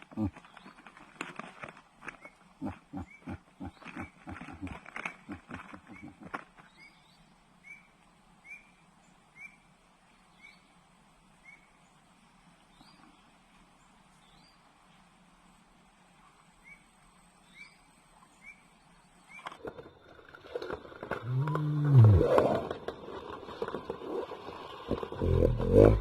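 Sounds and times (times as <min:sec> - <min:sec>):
low pulsed animal calls: 0:02.6 - 0:06.4, 0:21.2 - 0:22.7.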